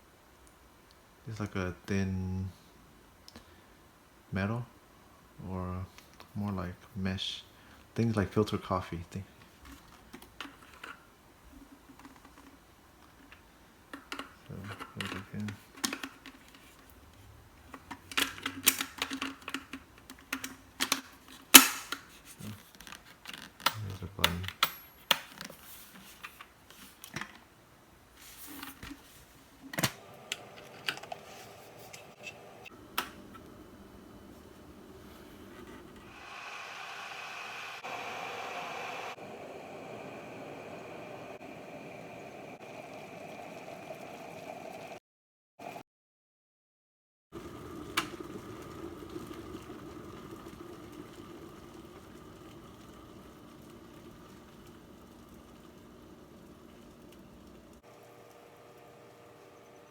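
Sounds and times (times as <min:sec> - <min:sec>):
kettle heating hiss: 0:00.0 - 0:22.7, 0:25.6 - 0:45.0, 0:47.4 - 0:59.9.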